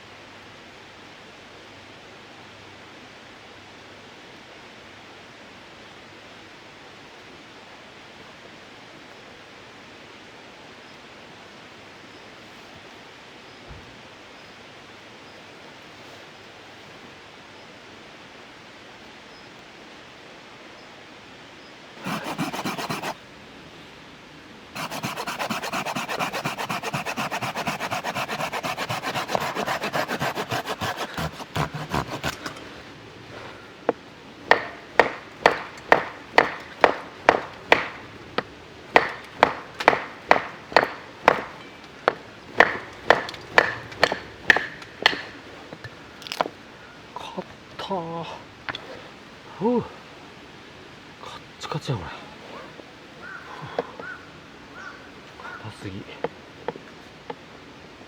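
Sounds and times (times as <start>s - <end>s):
faint rain hiss: 0.0s - 22.0s, 23.2s - 24.8s, 32.3s - 39.0s, 43.4s - 58.0s
hand tool rasping wood: 22.0s - 23.2s, 24.8s - 46.5s.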